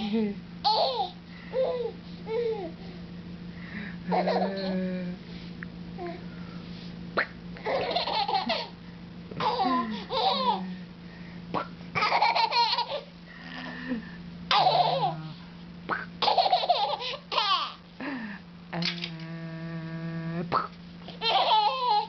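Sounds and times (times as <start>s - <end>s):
baby laughing: 0.0s - 2.8s, 4.1s - 4.6s, 7.6s - 10.7s, 12.0s - 13.1s, 14.5s - 15.2s, 16.2s - 17.8s, 21.1s - 22.0s
steady low hum: 0.0s - 22.0s.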